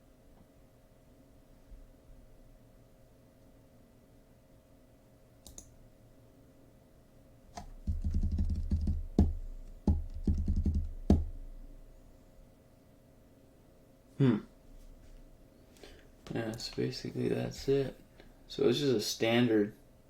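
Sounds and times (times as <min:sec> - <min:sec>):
typing on computer keyboard: 0:05.4 - 0:05.7, 0:07.6 - 0:11.3.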